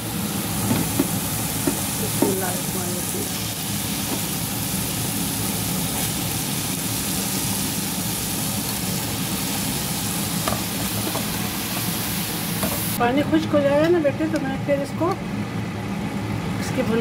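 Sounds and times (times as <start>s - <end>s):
masala sizzling in a pot: 0.0s - 16.8s.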